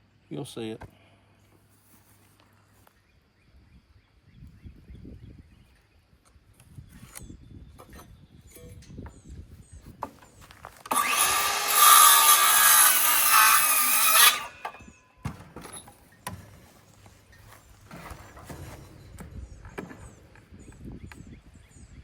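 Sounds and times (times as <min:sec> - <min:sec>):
power saw cutting wood: 0:10.8 - 0:14.9.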